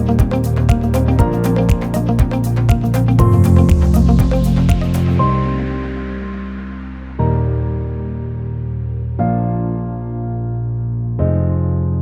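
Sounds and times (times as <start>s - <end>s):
background music with steady beat: 0.0s - 8.4s.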